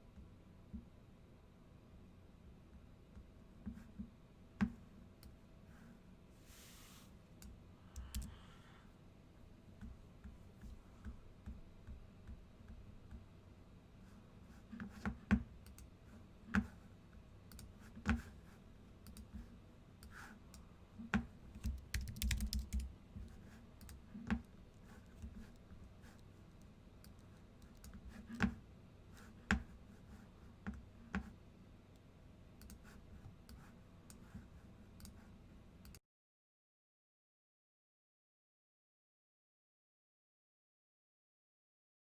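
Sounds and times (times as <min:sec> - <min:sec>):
computer keyboard clicking: 0:08.0 - 0:08.4, 0:21.6 - 0:22.9.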